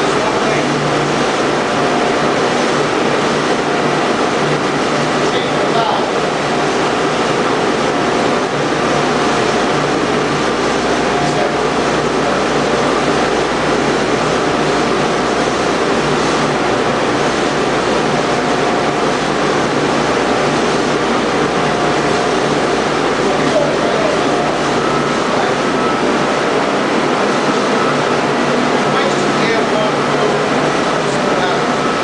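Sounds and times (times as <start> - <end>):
boiler room machinery roar: 0.0 - 32.0.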